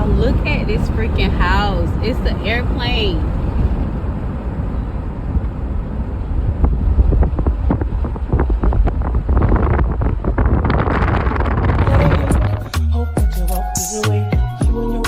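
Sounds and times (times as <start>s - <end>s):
wind buffeting microphone: 0.0s - 13.0s
low rumble: 0.0s - 13.8s.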